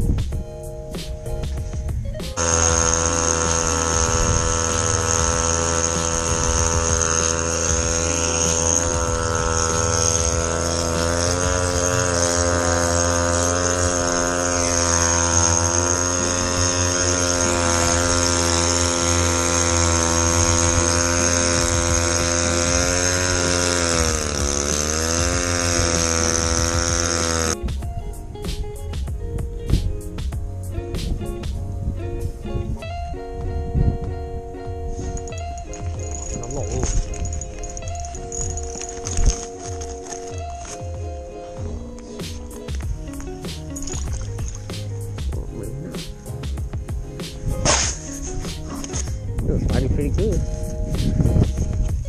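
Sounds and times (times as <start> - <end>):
motor droning with high whine: 2.4 - 27.6.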